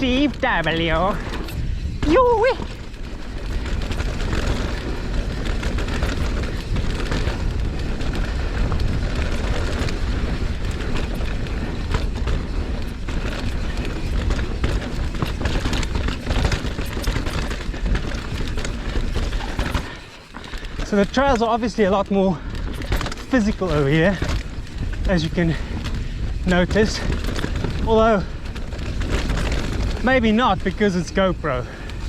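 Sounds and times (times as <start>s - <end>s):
bike rattling over rocks: 0.0s - 32.0s
wind rumble on microphone: 0.0s - 32.0s.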